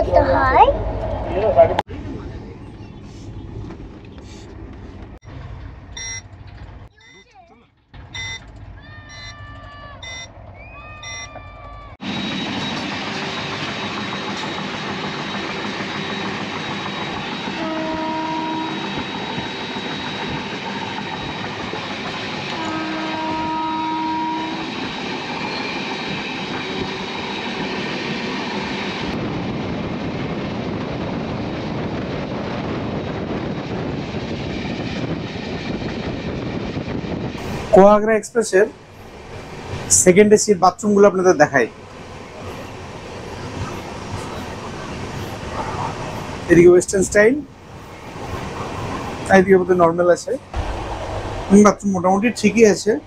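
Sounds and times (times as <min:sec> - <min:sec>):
train rushing at high speed: 0:08.1 - 0:53.0
train horn blasts: 0:17.6 - 0:19.0, 0:22.5 - 0:24.7.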